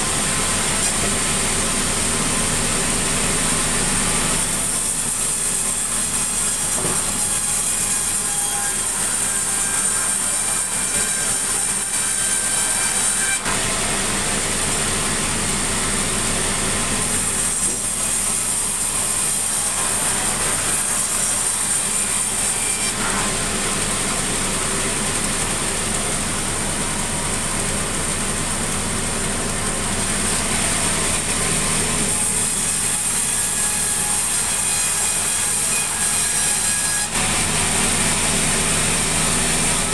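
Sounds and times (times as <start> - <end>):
saw cutting timber: 0.0 - 39.9.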